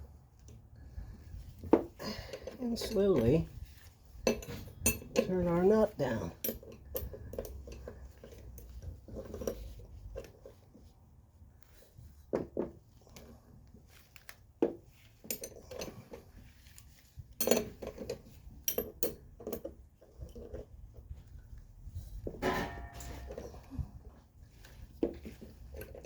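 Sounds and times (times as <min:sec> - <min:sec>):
metal wrenches clicking on nut: 0:04.2 - 0:10.6, 0:15.2 - 0:20.7
metallic knocks: 0:22.4 - 0:23.6.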